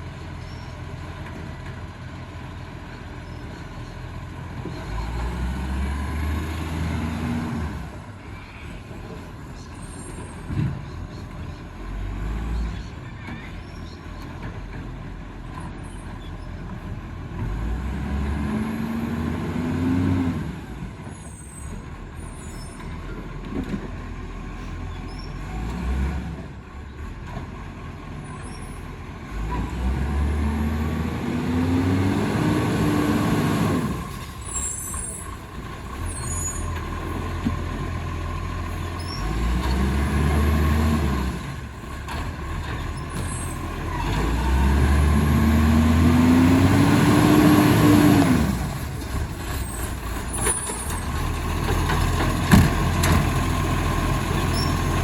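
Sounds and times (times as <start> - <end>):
diesel truck engine revving: 4.2 - 8.2, 11.6 - 13.1, 17.0 - 23.0, 24.2 - 55.0.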